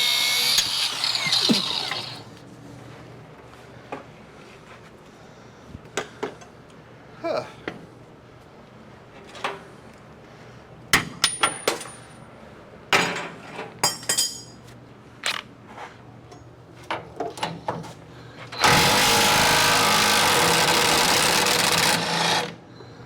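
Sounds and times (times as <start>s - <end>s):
power tool running: 0.0s - 2.3s, 18.6s - 22.6s.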